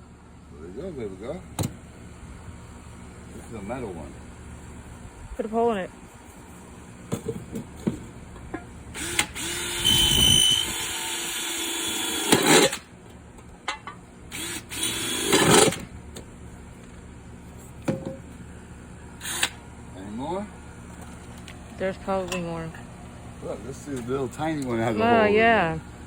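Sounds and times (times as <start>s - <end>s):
electric drill boring through metal: 9.0s - 12.8s, 14.3s - 15.8s, 19.2s - 19.6s.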